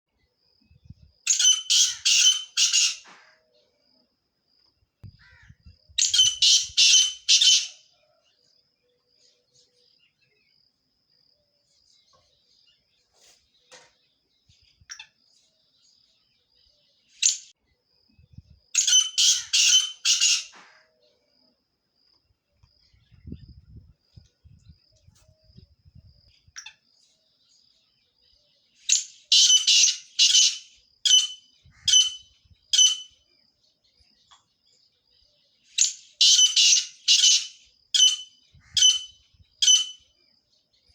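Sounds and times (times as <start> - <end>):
partridge harsh rasping calls: 1.3 - 3.4, 5.2 - 7.8, 18.8 - 20.9, 28.9 - 33.2, 35.8 - 40.0.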